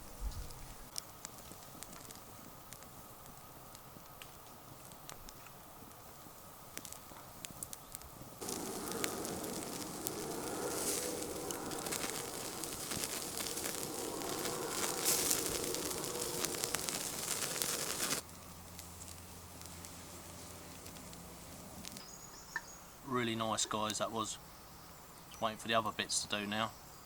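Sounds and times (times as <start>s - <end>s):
campfire crackling and popping: 0.5s - 22.2s.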